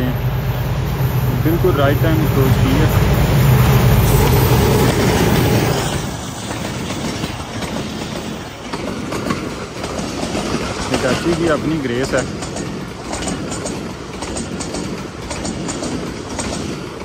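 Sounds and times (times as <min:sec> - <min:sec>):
locomotive engine passing: 0:00.0 - 0:17.0
wheels clattering over rail joints: 0:04.4 - 0:17.0.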